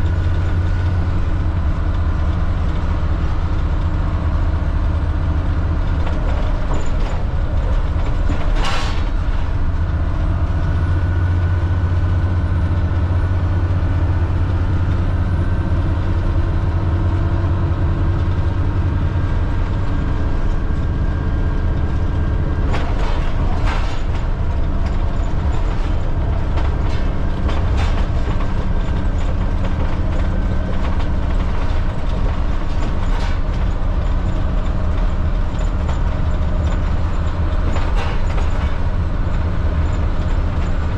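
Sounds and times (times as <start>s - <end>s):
bus diesel engine running: 0.0s - 40.9s
road noise: 0.0s - 40.9s
body rattles and knocks: 22.6s - 40.9s.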